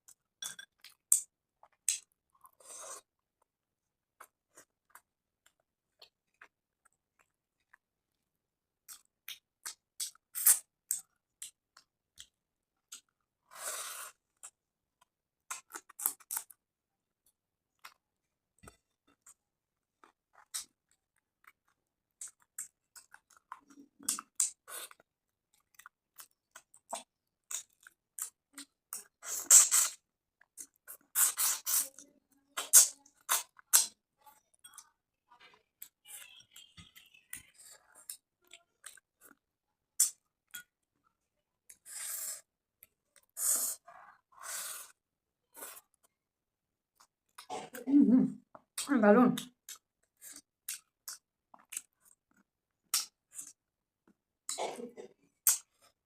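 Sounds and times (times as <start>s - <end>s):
wet chewing and lip smacks: 20.0s - 32.0s, 35.8s - 39.4s, 48.5s - 54.6s, 55.4s - 55.8s
wet mouth noises: 26.6s - 34.0s, 55.4s - 55.8s
small sharp mouth clicks: 55.4s - 55.7s.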